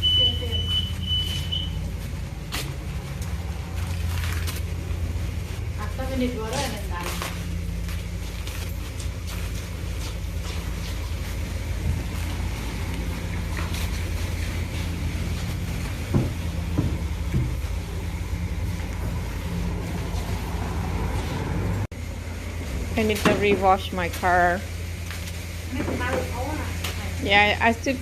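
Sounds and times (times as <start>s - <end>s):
low motor hum with hiss: 0.0s - 28.0s.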